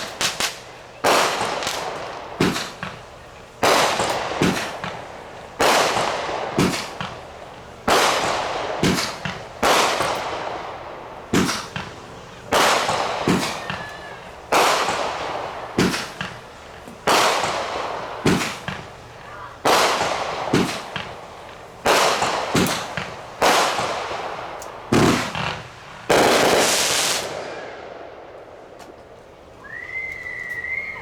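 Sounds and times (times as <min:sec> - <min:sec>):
firework bang with crackling: 0:00.0 - 0:28.7.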